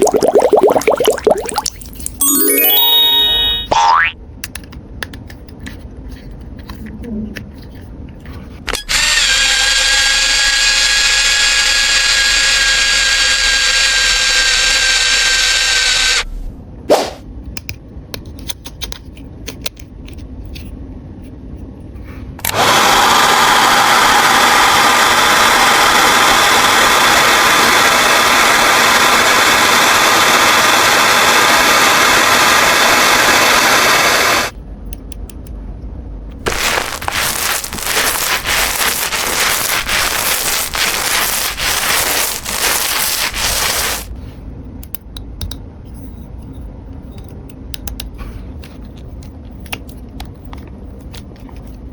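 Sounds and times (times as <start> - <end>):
small motor whirring: 8.9 - 16.3, 36.5 - 44.1.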